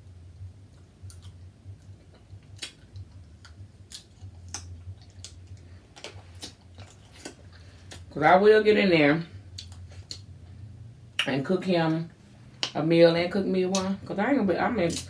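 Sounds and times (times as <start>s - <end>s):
low steady hum: 0.0s - 15.0s
wet eating clicks and smacks: 0.7s - 8.1s, 9.6s - 10.3s.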